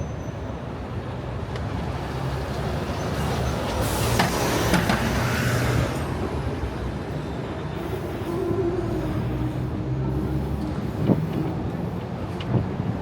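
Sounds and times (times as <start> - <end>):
street traffic: 0.0 - 13.0
heavy vehicle engine running: 6.0 - 13.0.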